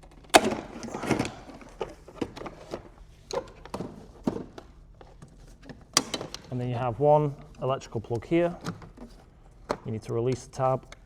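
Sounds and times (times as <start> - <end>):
wiring harness rustling: 0.6 - 2.8.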